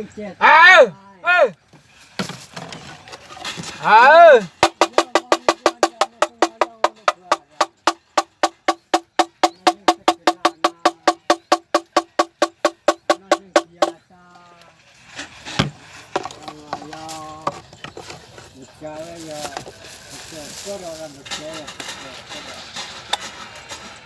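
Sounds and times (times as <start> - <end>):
person calling: 3.8 - 14.0
wooden knocker knocking: 4.5 - 14.0.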